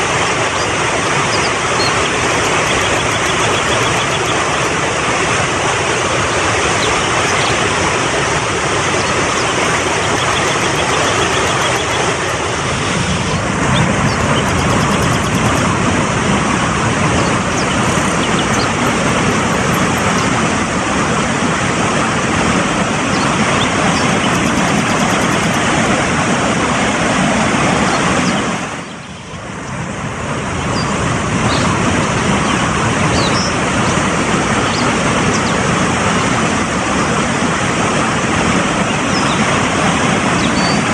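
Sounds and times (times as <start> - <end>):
mountain stream rushing: 0.0 - 40.9
faint high chirps: 1.3 - 4.5, 9.4 - 12.2, 14.0 - 15.7, 17.5 - 20.3, 23.6 - 25.7.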